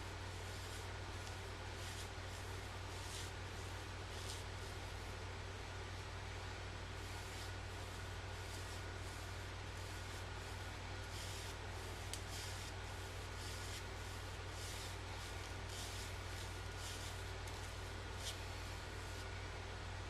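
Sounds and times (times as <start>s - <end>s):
low electrical hum: 0.0s - 20.0s
razor scraping stubble: 7.1s - 19.3s.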